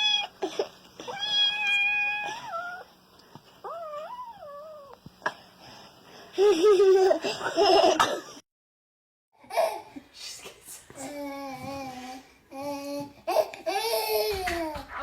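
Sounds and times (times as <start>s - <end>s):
cat meowing: 1.1s - 2.8s.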